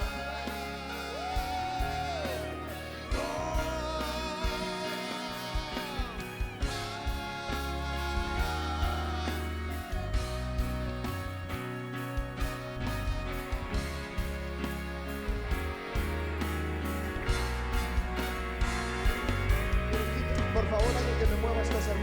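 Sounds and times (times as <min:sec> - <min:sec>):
person singing with vibrato: 0:00.0 - 0:10.7
band with sustained bass: 0:00.0 - 0:22.0.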